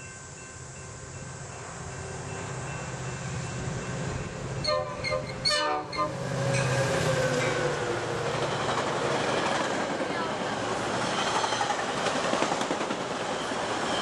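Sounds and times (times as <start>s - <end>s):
train rolling: 0.0s - 14.0s
locomotive horn blasts: 4.6s - 6.8s.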